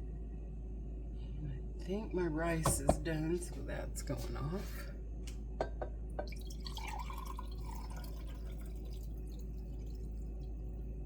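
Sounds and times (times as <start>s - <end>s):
steady low hum: 0.0s - 11.0s
broth pouring and dripping: 6.2s - 11.0s.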